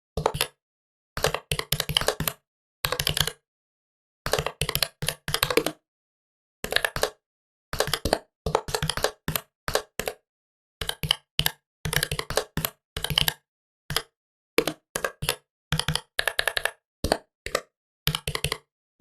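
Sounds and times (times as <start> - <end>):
laptop keyboard typing: 0.2 - 0.6, 1.2 - 3.4, 4.3 - 5.8, 6.6 - 7.2, 7.8 - 10.2, 10.8 - 18.7.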